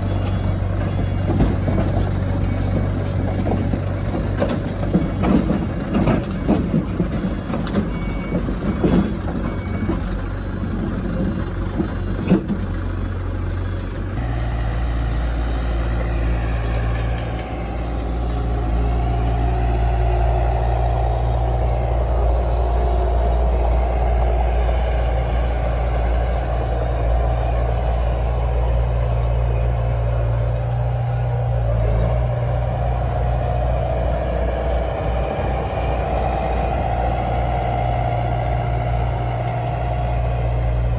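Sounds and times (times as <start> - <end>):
machinery clanks and knocks: 0.0 - 12.8
diesel engine running: 0.0 - 40.9
held higher tone: 14.2 - 40.9.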